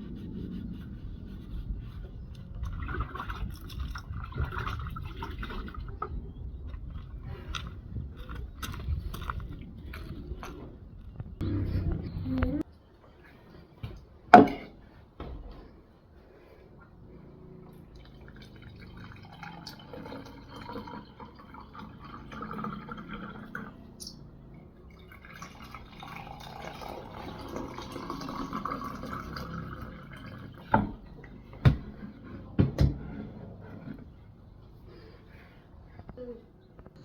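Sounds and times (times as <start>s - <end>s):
liquid pouring into container: 2.4s - 6.0s, 17.8s - 31.1s.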